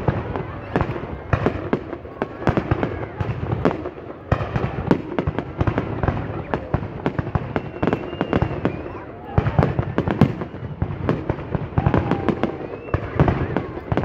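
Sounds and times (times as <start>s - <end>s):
fireworks bangs and crackles: 0.0s - 14.0s
faint firework whistle: 5.8s - 14.0s.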